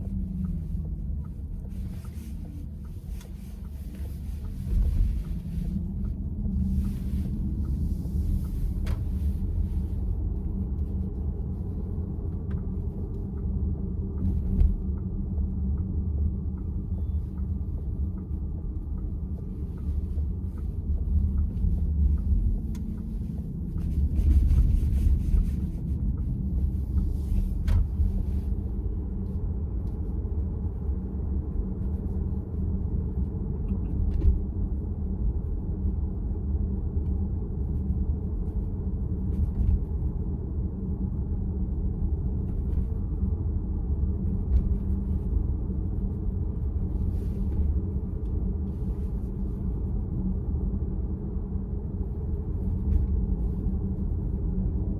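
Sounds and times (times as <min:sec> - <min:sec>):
road and tyre rumble: 0:00.0 - 0:54.9.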